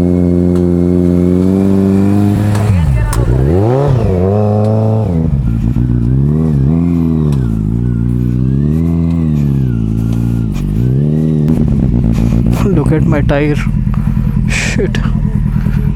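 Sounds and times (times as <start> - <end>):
motorcycle engine revving: 0.0 - 15.9.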